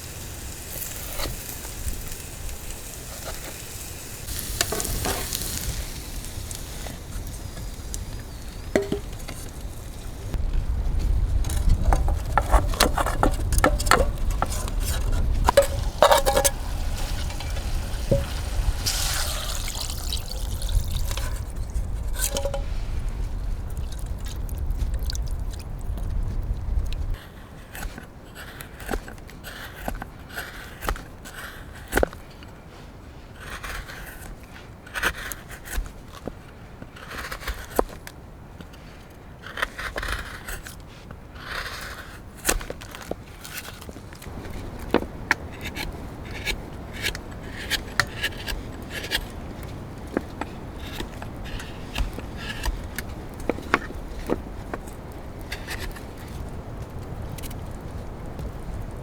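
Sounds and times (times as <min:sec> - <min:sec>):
short scraping strokes: 0:11.6 - 0:23.2.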